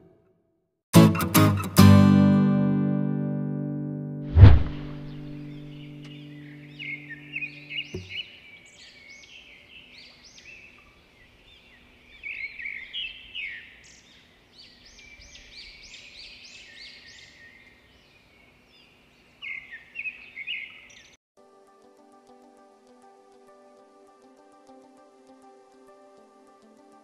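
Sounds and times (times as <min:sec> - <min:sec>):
music: 0:00.9 - 0:07.7, 0:21.4 - 0:27.0
wild birds chirping and trilling: 0:05.1 - 0:21.2.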